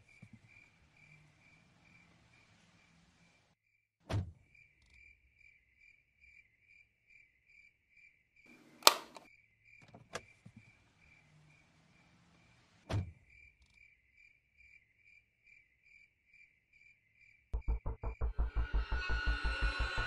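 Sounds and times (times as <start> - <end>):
crickets chirping: 0.0 - 3.4, 4.5 - 8.4, 9.2 - 12.6, 13.2 - 17.5.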